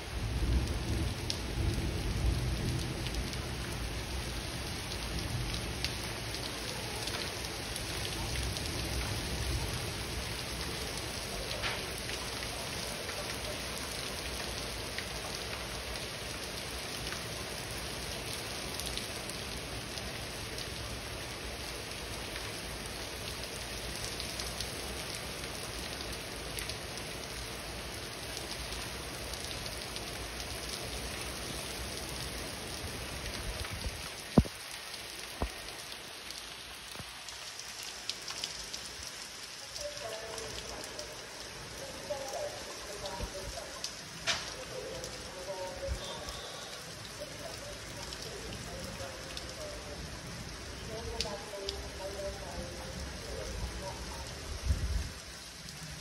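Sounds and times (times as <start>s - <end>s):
heavy rain on pavement: 0.0s - 56.0s.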